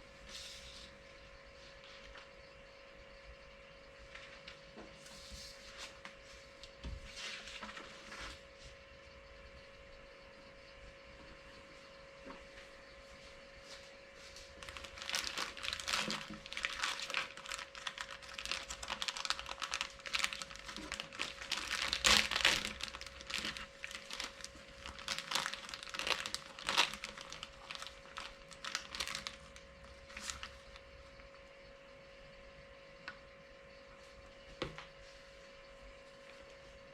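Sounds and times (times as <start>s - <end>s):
faint steady hum: 0.0s - 36.9s
packaging crinkling: 14.6s - 30.8s.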